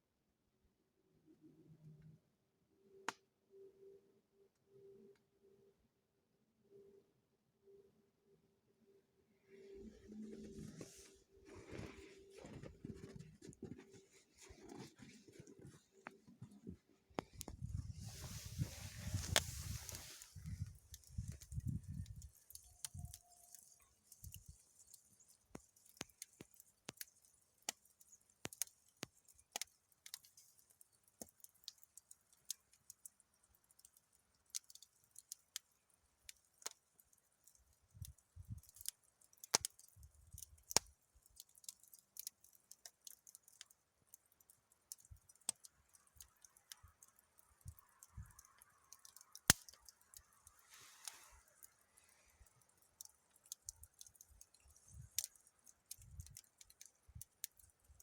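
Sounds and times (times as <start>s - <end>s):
faint fire hiss: 9.4s - 33.0s, 47.6s - 58.0s
campfire crackling and popping: 10.8s - 58.0s.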